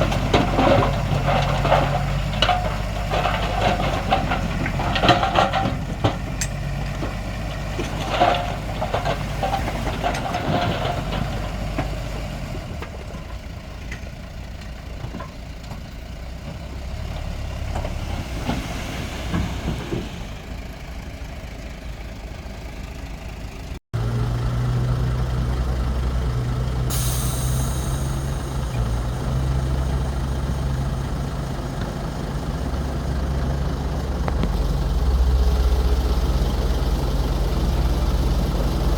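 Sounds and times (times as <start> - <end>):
metal clanks and knocks: 0.0 - 12.0
heavy diesel engines running: 0.0 - 38.9
short hiss: 26.9 - 28.5.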